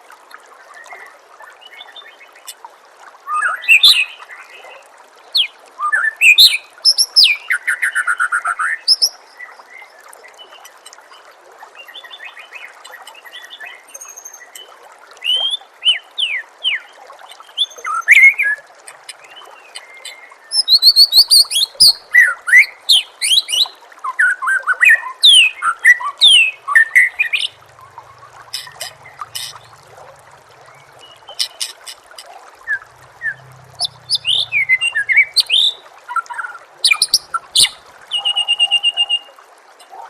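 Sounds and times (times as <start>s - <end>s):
trickling water: 0.0s - 40.0s
songbird whistling and trilling: 19.7s - 27.6s, 32.7s - 39.4s.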